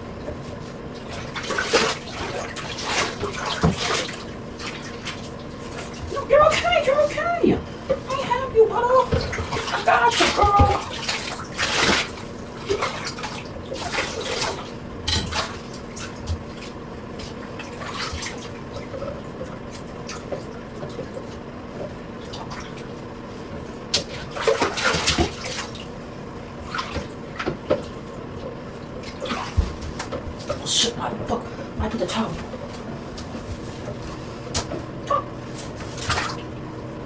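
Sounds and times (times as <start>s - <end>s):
water splashing in bathtub: 0.0s - 37.0s.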